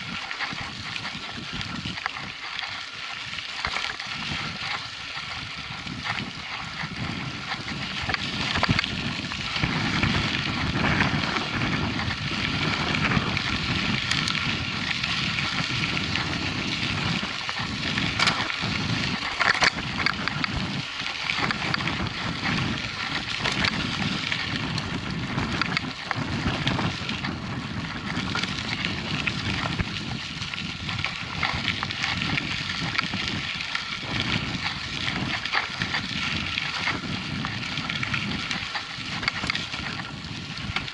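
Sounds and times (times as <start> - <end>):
bike rattling over bumps: 0.0 - 40.9
bike tyres rumbling on dirt: 0.0 - 40.9.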